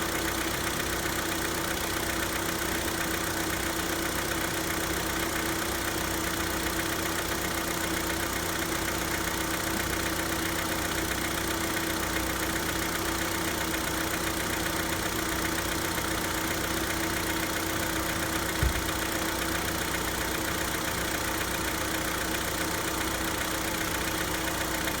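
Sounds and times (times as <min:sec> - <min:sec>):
car engine idling: 0:00.0 - 0:25.0
short low thump: 0:18.6 - 0:19.2.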